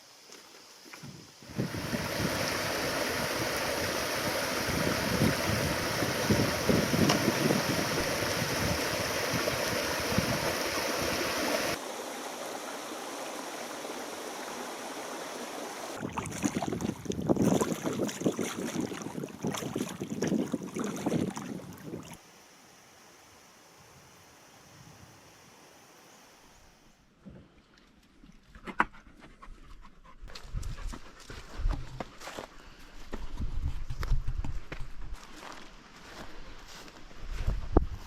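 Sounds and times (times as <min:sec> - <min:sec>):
wind buffeting microphone: 0:01.1 - 0:11.2, 0:16.0 - 0:22.2, 0:33.2 - 0:35.2, 0:36.7 - 0:38.0
rushing water: 0:01.4 - 0:22.2.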